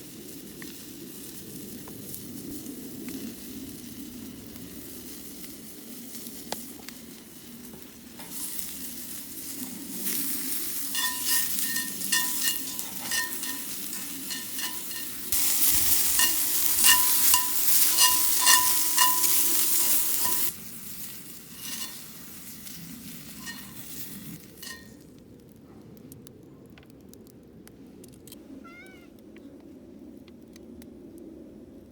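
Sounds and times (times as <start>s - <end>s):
food sizzling in a pan: 7.7s - 25.0s
metal utensil clinking on pan: 10.0s - 20.5s, 21.6s - 22.0s, 23.3s - 24.0s, 24.6s - 24.9s.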